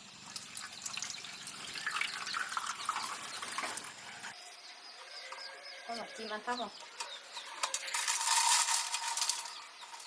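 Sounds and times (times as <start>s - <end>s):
water trickling and dripping: 0.0s - 4.4s.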